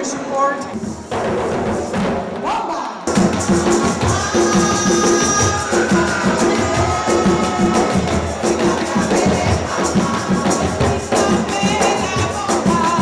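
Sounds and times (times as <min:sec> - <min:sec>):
hand drums beat: 0:00.7 - 0:13.0
jingling shaker percussion: 0:03.1 - 0:13.0.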